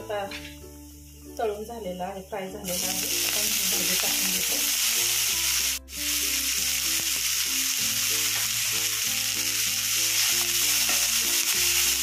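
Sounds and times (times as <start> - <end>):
leaves sizzling in hot oil: 2.4 - 12.0.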